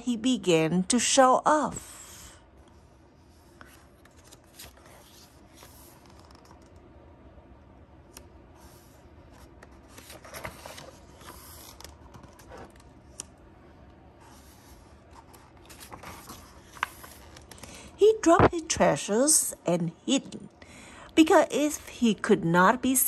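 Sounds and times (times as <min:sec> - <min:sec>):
book pages turning: 0:03.4 - 0:06.9, 0:08.1 - 0:13.4, 0:14.2 - 0:18.6.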